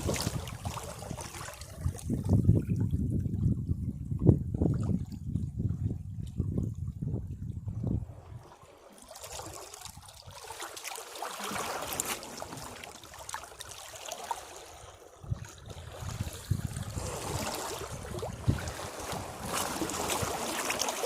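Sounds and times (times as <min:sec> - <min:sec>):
waves breaking against rocks: 0:00.0 - 0:02.3, 0:08.0 - 0:21.0.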